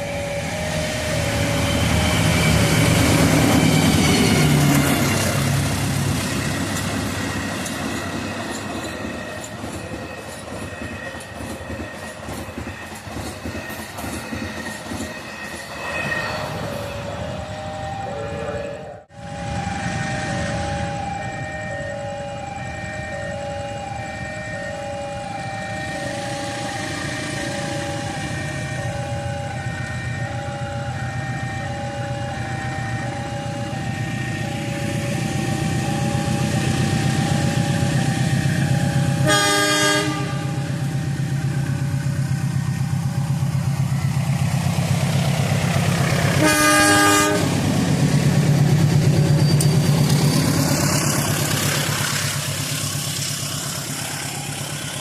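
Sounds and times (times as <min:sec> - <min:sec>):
train rumbling past: 0:00.0 - 0:55.0
two-note electronic warning tone: 0:15.7 - 0:44.4
train horn blasts: 0:24.8 - 0:41.2, 0:46.3 - 0:47.6.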